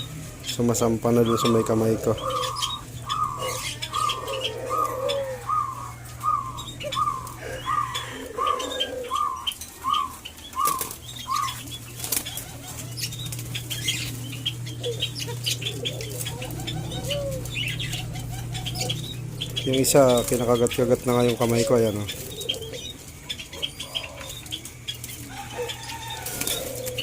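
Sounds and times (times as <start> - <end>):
low bird calls: 0.0 - 27.0
steady low hum: 0.0 - 27.0
wing flutters and taps: 11.9 - 14.5.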